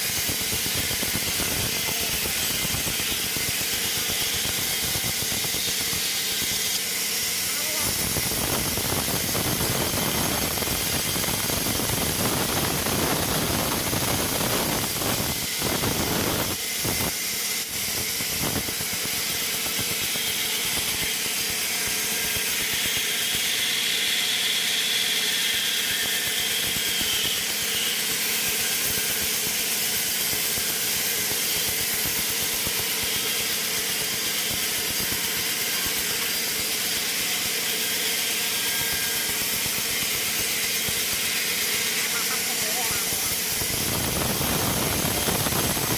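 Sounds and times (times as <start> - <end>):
sawmill machinery running: 0.0 - 45.9.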